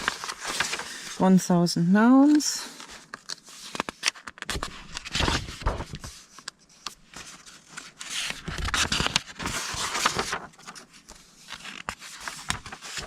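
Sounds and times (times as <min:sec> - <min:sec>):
paper rustling: 0:00.0 - 0:01.2, 0:02.1 - 0:13.0.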